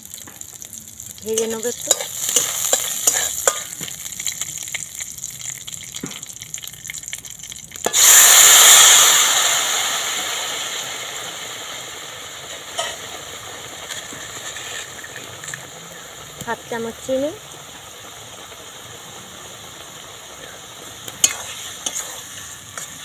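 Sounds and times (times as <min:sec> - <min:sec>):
spices crackling in hot oil: 0:00.0 - 0:23.0
vegetables sizzling loudly in oil: 0:00.0 - 0:23.0
spatula clicking and scraping pan: 0:01.4 - 0:04.4, 0:21.1 - 0:23.0.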